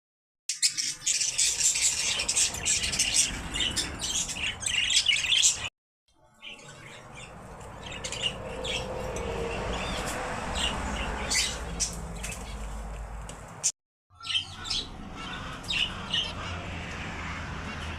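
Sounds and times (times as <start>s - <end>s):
small birds chirping: 0.5s - 5.7s, 6.4s - 13.0s, 14.1s - 16.6s
bird squawks: 14.1s - 17.9s.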